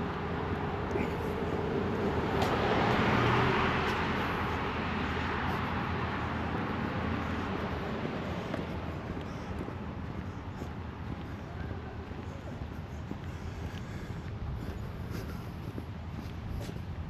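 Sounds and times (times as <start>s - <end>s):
car driving past: 0.0s - 9.3s.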